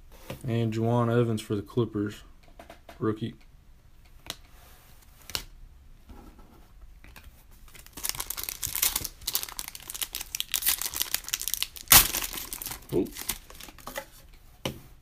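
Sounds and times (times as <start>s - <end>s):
wrapper tearing and crinkling: 7.7s - 13.8s.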